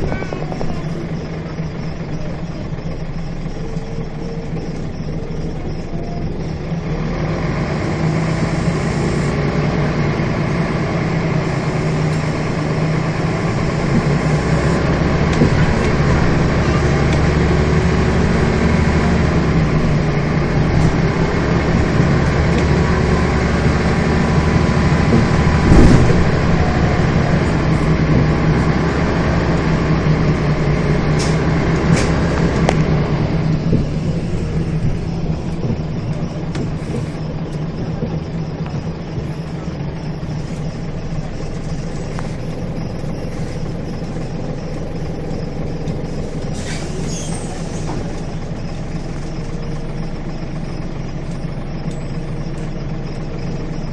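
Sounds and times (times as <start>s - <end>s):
bus diesel engine running: 0.0s - 53.9s
loud knock: 25.2s - 26.7s.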